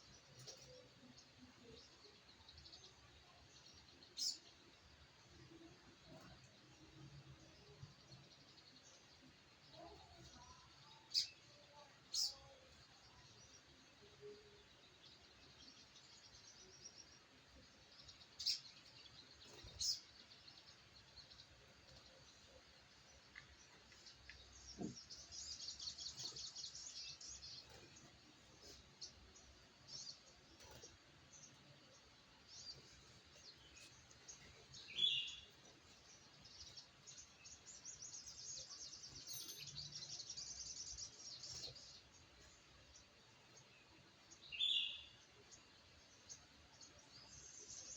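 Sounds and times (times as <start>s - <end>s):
small bird chirping and trilling: 3.6s - 4.6s, 9.8s - 13.6s, 17.9s - 22.4s, 23.9s - 47.9s.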